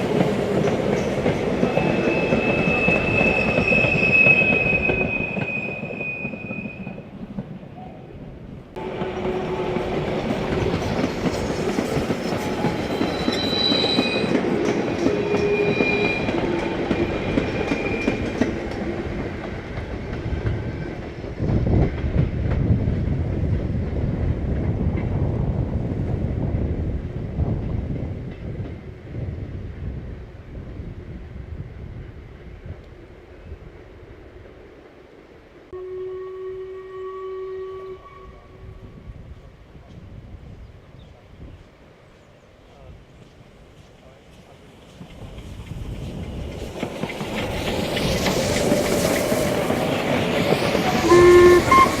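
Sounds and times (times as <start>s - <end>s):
train wheels clattering on rail joints: 0.0s - 7.6s, 8.8s - 25.2s, 43.2s - 52.0s
low train rumble: 0.0s - 52.0s
high wheel squeal: 1.6s - 7.0s, 12.5s - 14.4s, 15.1s - 18.3s, 50.9s - 52.0s.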